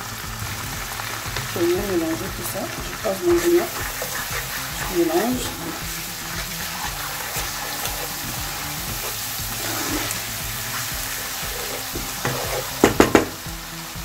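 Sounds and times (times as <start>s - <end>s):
onions sizzling in oil: 0.0s - 14.0s
wooden spatula scraping pan: 2.2s - 13.2s
sharp knocks: 12.8s - 13.4s.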